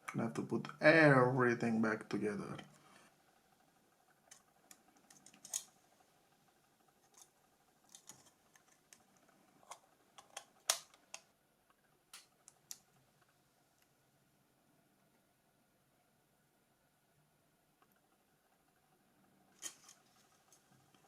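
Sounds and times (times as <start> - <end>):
plastic parts clicking: 4.3 - 5.7, 7.0 - 11.3.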